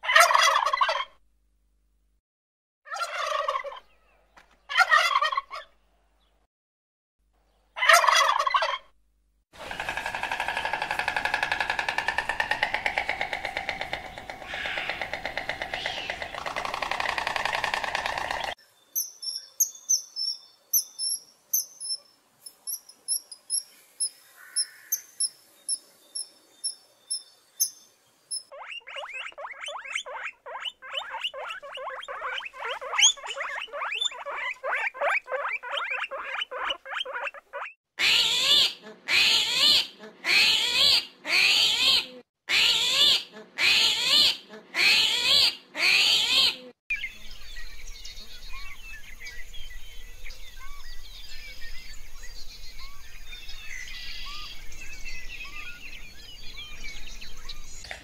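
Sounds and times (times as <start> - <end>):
rapid animal calls: 9.6 - 18.6, 28.6 - 42.0
loud harsh animal calls: 9.8 - 18.6
faint bird chirps: 18.6 - 37.8
high thin animal chirps: 27.6 - 37.8.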